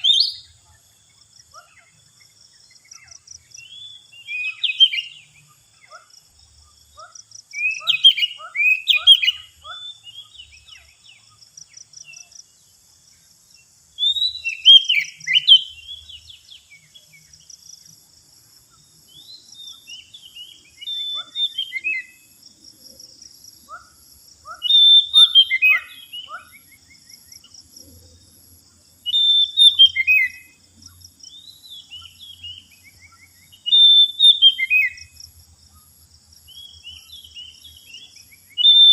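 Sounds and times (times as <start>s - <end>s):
magpie-robin whistled song: 0.0s - 0.6s, 2.9s - 6.1s, 7.0s - 11.1s, 14.0s - 17.4s, 18.7s - 22.3s, 24.5s - 27.5s, 29.0s - 30.6s, 31.3s - 35.2s, 36.5s - 38.9s.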